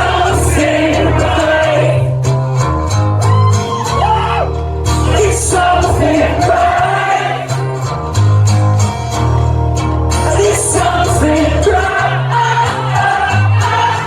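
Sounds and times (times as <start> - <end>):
person singing: 0.0 - 2.2, 5.1 - 7.6
live rock band playing: 0.0 - 14.0.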